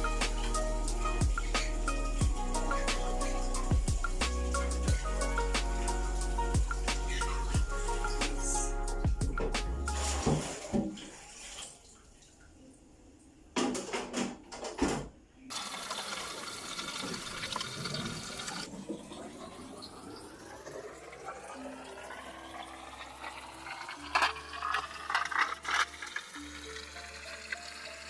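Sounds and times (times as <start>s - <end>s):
tap water filling a container: 10.2s - 12.5s, 15.5s - 28.0s.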